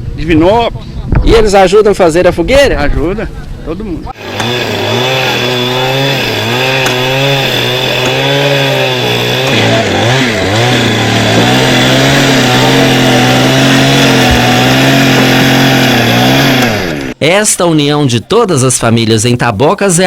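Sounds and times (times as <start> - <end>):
two-stroke chainsaw running: 4.2 - 17.2.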